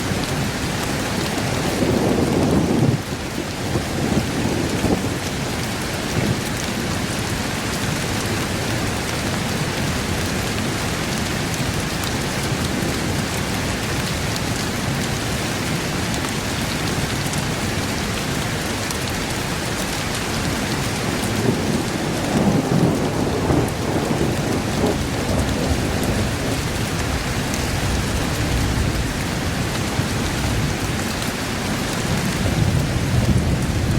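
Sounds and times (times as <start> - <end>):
steady rain: 0.0 - 33.9
rolling thunder: 21.1 - 30.9, 32.1 - 33.9.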